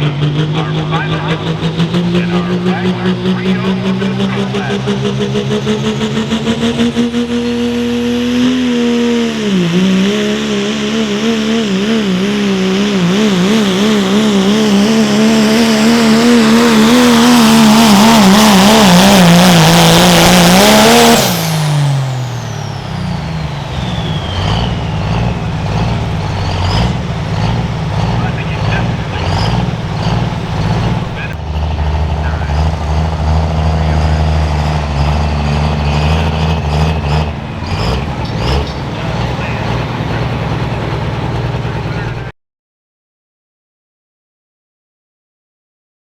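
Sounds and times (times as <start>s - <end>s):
diesel pickup engine at full throttle: 0.0s - 42.3s
turbo whistle: 21.2s - 31.4s.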